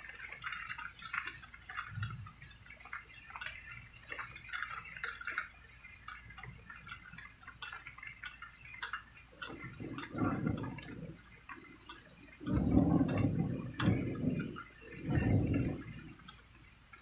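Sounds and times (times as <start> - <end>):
rain dripping: 0.0 - 17.0.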